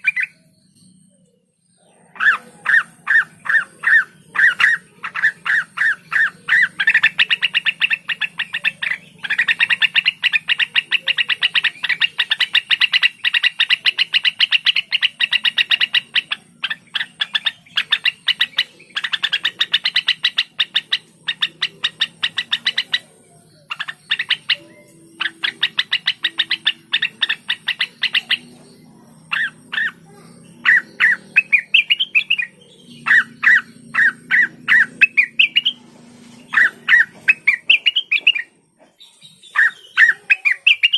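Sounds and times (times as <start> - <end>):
bird singing chattering song: 0.0 - 40.9.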